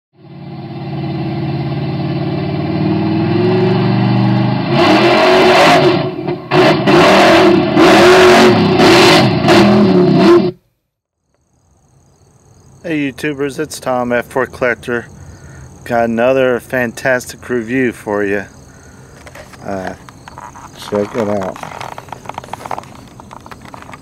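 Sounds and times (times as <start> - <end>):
engine revving: 0.2 - 10.6.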